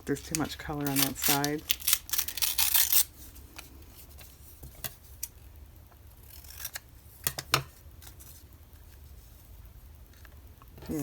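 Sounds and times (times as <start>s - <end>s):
scissors snipping paper: 0.2s - 3.1s.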